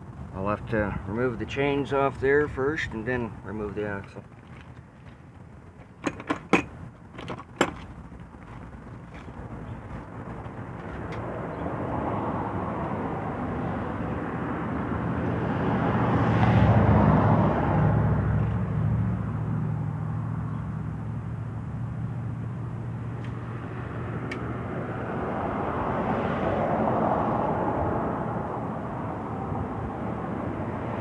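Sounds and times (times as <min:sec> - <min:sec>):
vehicle engine passing by: 0:09.4 - 0:31.0.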